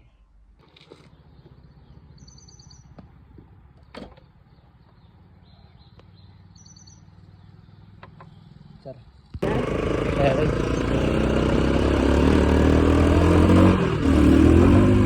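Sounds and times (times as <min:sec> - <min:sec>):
bird chirping: 0:01.0 - 0:09.2.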